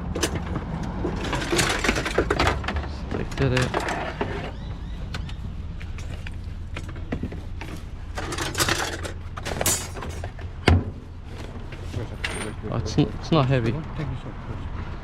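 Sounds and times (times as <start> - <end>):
scrap metal creaking and scraping: 0.0 - 4.7, 5.9 - 12.8.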